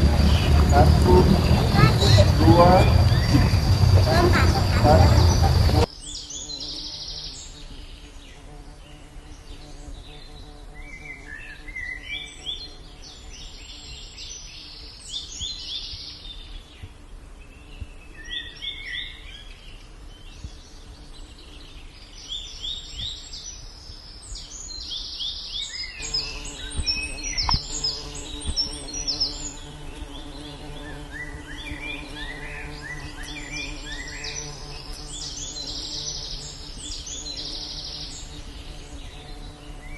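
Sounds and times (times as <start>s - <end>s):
low buzzing hum: 0.0s - 5.9s
birds chirping and calling: 0.0s - 16.6s, 20.4s - 39.9s.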